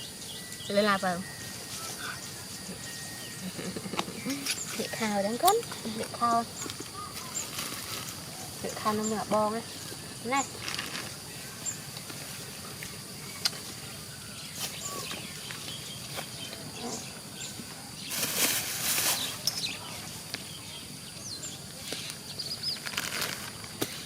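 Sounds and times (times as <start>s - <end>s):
faint steady high tone: 0.0s - 7.4s
rustling: 1.2s - 20.2s, 21.8s - 24.0s.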